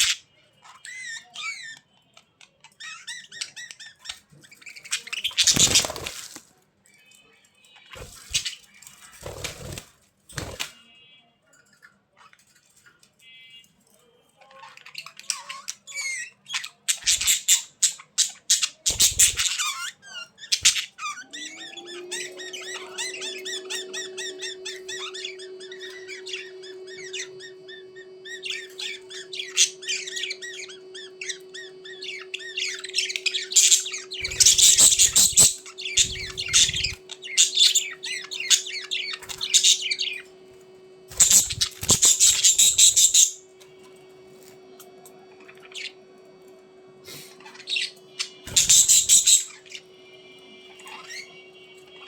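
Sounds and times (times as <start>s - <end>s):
budgerigars chattering: 2.5s - 6.1s, 14.9s - 40.3s, 41.1s - 43.5s, 47.1s - 49.9s
harsh squawking: 17.0s - 40.4s, 41.1s - 43.5s
steady low hum: 20.7s - 52.0s.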